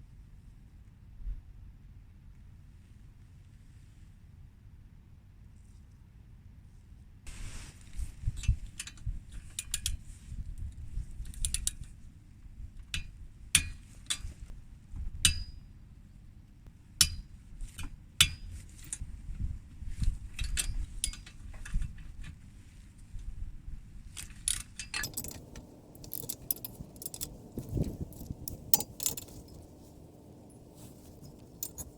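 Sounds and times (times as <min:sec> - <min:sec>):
hand tools clinking on metal: 0:25.0 - 0:31.9.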